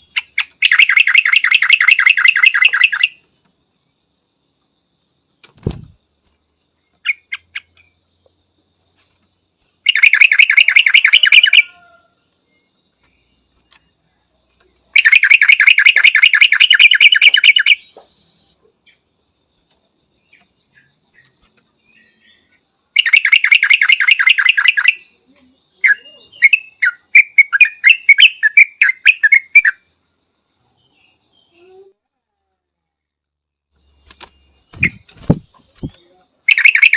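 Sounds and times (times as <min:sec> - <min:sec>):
bird chattering trills: 0:00.0 - 0:03.2, 0:09.8 - 0:11.8, 0:14.9 - 0:18.2, 0:34.2 - 0:36.9
bird quick varied chirps: 0:00.0 - 0:03.4, 0:05.5 - 0:06.0, 0:08.9 - 0:11.9, 0:14.6 - 0:19.0, 0:20.2 - 0:29.9, 0:33.9 - 0:36.9.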